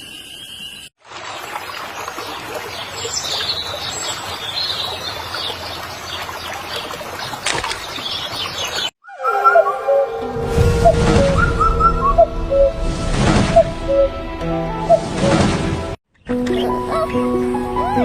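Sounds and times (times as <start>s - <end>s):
music with whistle-like tones: 9.0s - 14.2s.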